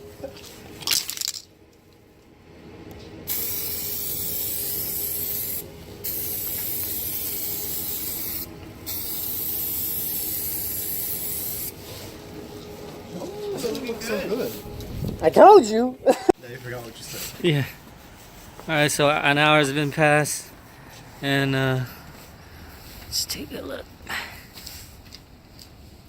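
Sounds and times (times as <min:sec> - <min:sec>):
aerosol can spraying hiss: 0:03.3 - 0:11.8.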